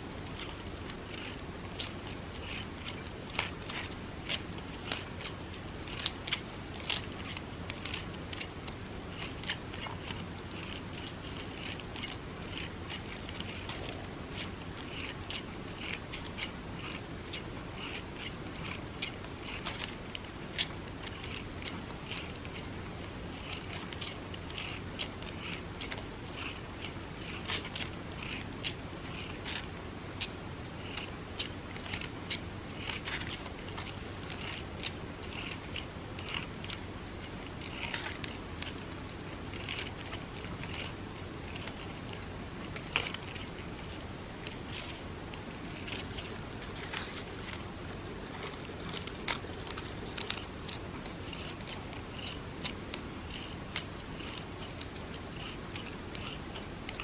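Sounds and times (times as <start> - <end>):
scissors snipping paper: 0.1 - 57.0.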